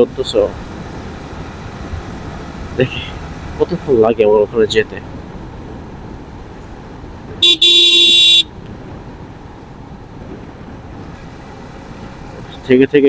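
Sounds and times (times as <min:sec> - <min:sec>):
wind and road noise: 0:00.0 - 0:13.0
vehicle horn honking: 0:07.4 - 0:08.6.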